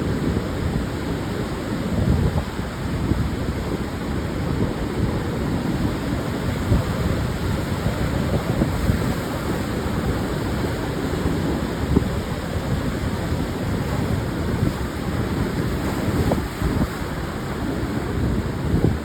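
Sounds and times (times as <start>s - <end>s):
ocean surf breaking on beach: 0.0s - 19.0s
wind buffeting microphone: 0.0s - 19.0s.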